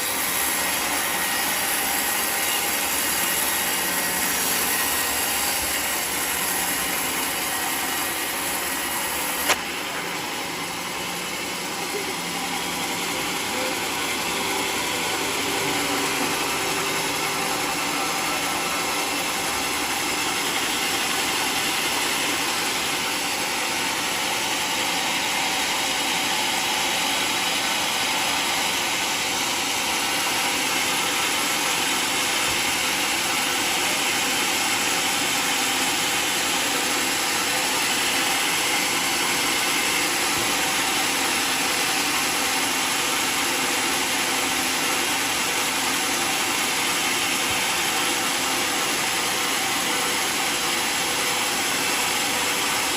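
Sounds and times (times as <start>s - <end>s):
sawmill cutting log: 0.0s - 52.9s
sharp click: 9.4s - 9.7s.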